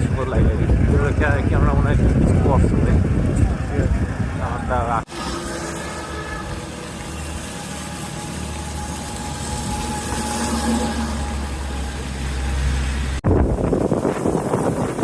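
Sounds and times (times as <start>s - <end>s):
loud rough engine noise: 0.0s - 13.2s
vehicle engine humming: 0.0s - 15.0s.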